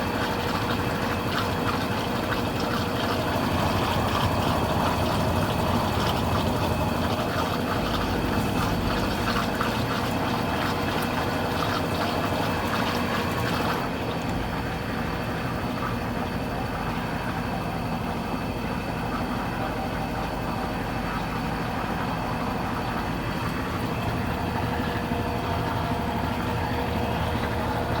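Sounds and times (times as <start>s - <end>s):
washing machine running: 0.0s - 28.0s
water rushing through machine: 0.0s - 28.0s.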